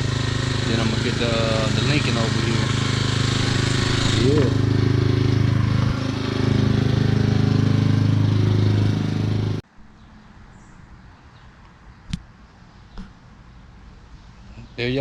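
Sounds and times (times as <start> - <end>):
motor humming: 0.0 - 9.6
sharp click: 11.6 - 12.3.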